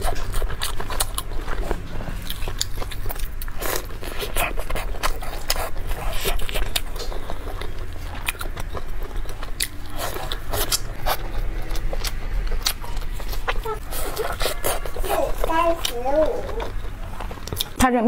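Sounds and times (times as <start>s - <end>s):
chewing with wet mouth clicks: 0.0s - 17.8s
steady low hum: 0.0s - 18.0s.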